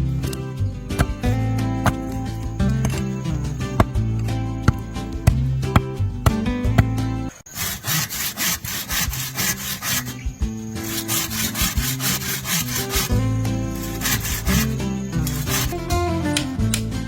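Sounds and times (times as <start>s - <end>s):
hand saw cutting wood: 6.8s - 15.8s.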